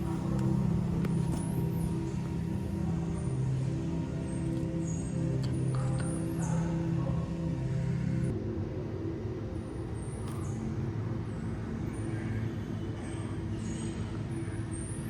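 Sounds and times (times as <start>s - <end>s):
low mechanical rumble: 0.0s - 8.4s.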